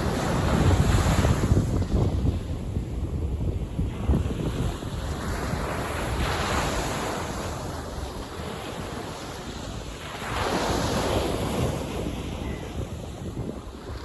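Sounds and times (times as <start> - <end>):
wind rumble on microphone: 0.0 - 14.0
ocean waves washing in: 3.8 - 14.0.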